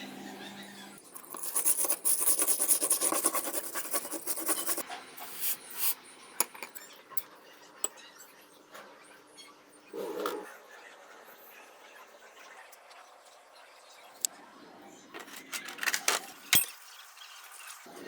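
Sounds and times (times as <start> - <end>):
metal screw being scraped: 1.0 - 6.9.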